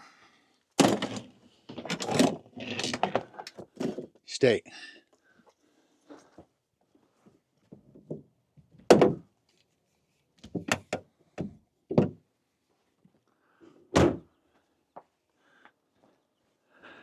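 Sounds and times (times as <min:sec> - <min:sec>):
knocks and thumps of van doors: 0:08.9 - 0:09.3, 0:10.5 - 0:12.2, 0:14.0 - 0:14.3.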